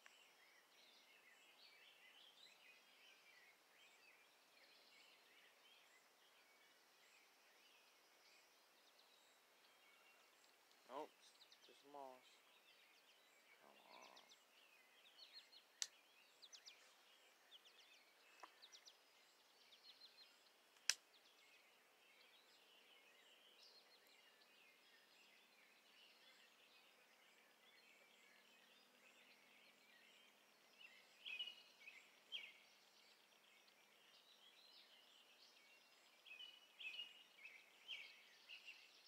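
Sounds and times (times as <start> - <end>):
songbirds chirping: 0.0 - 39.0
sharp clicks: 20.8 - 21.0.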